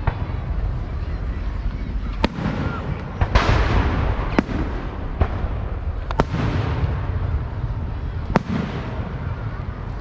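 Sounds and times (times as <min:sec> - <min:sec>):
fireworks bangs: 0:00.0 - 0:10.0
steady low rumble: 0:00.0 - 0:10.0.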